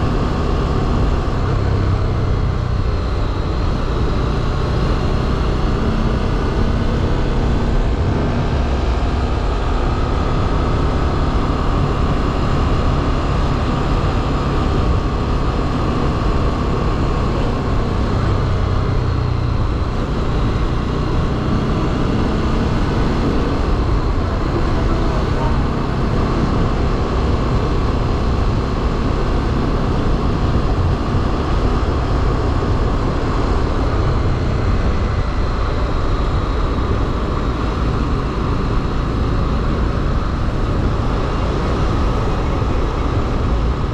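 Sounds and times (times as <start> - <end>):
motorcycle engine rumble: 0.0 - 43.9.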